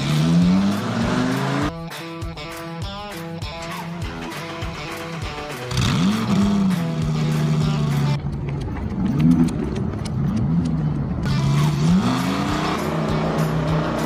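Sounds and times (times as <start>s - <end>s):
race car engine revving: 0.0s - 1.7s, 4.2s - 8.2s, 9.1s - 14.0s.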